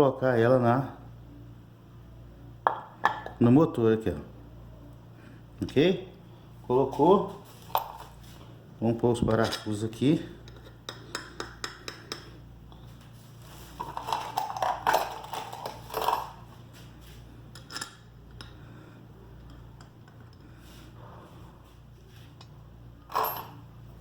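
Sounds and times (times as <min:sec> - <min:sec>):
metal bolts clinking: 0:23.1 - 0:23.6.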